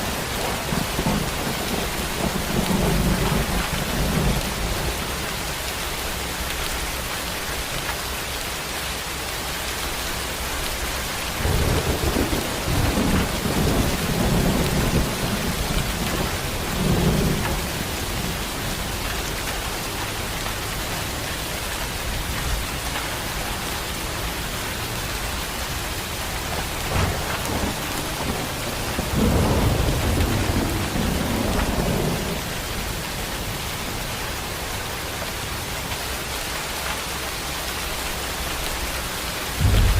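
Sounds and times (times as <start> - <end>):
low rolls of thunder: 0.0 - 5.1, 11.3 - 19.0, 26.4 - 33.6, 39.6 - 39.9
heavy rain falling: 0.0 - 39.9.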